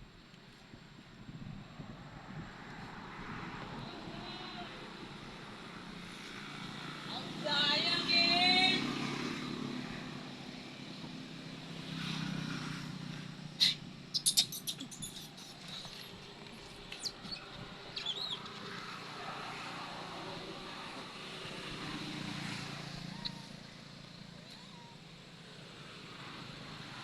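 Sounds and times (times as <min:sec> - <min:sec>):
brief high squeaks: 0:13.6 - 0:16.1.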